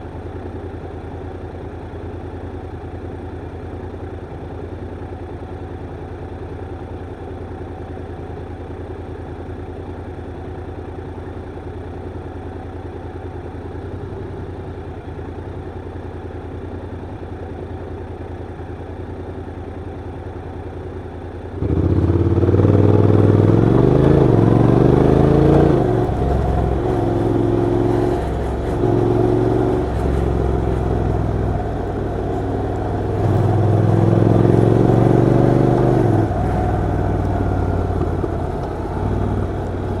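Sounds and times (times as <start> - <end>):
motorcycle engine idling: 0.0 - 40.0
motorcycle accelerating through gears: 21.6 - 40.0.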